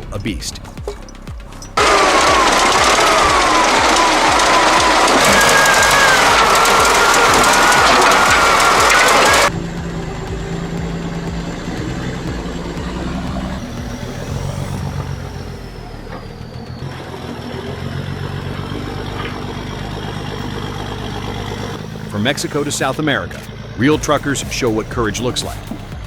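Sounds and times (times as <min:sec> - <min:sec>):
loud music: 0:00.0 - 0:16.1, 0:23.8 - 0:26.0
heavy vehicle engine running: 0:00.0 - 0:26.0.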